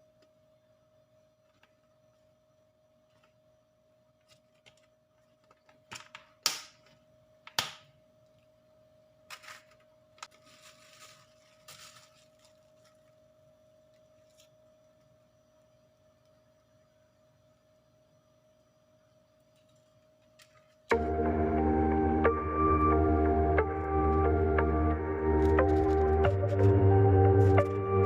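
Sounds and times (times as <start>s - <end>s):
faint steady hum: 0.0s - 28.0s
rustling scrapes: 9.3s - 13.1s.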